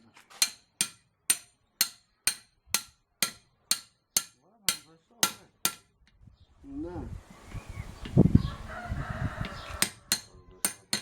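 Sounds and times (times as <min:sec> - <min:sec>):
hammer striking metal: 0:00.4 - 0:05.9, 0:09.8 - 0:11.0.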